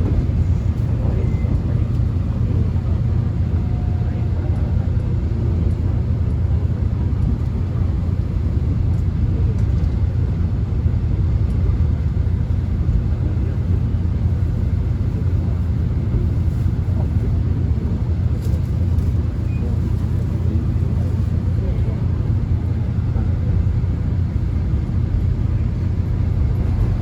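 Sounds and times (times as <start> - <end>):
subway train rumble: 0.0 - 27.0.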